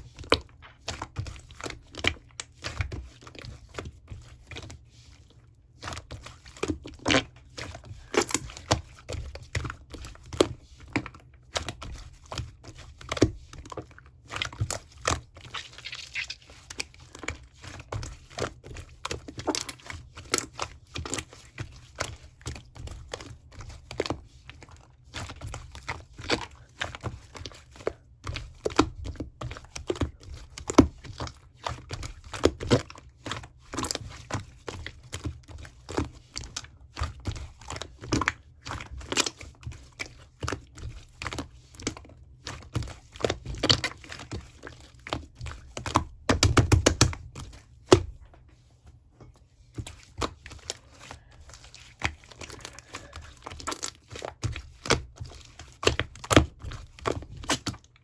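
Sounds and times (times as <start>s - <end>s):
slime crackling and tearing: 15.5s - 16.4s.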